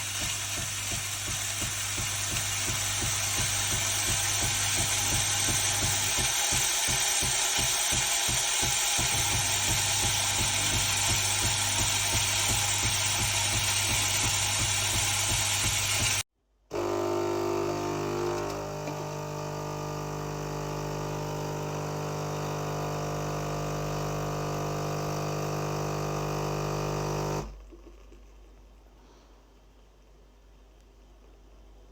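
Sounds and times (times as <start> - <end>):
coffee grinder rattling grind: 0.0 - 16.2
espresso machine pump hum: 0.0 - 28.0.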